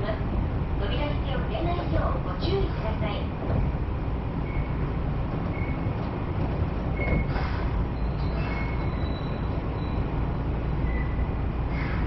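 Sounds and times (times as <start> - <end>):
train wheels rumbling on rails: 0.0 - 12.0
faint high squeals: 4.4 - 6.0, 6.9 - 12.0.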